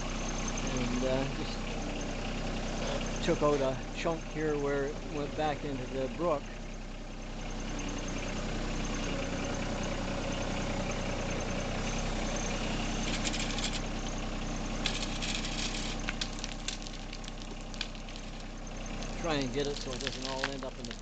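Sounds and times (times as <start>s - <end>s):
machine engine running: 9.4s - 21.0s
rattling and scraping: 12.4s - 14.0s, 14.7s - 21.0s.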